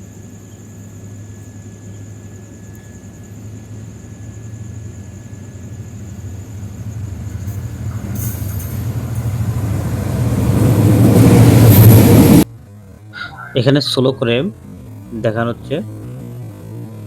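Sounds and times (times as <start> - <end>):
rail and wheel noise: 0.0 - 14.4
train engine rumble: 0.0 - 15.9.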